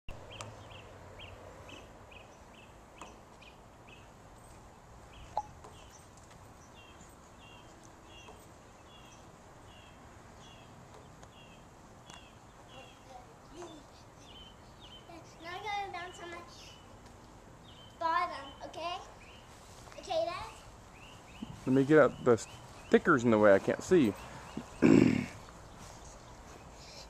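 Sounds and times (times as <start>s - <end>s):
bird chirping: 0.1s - 17.0s, 17.6s - 27.0s.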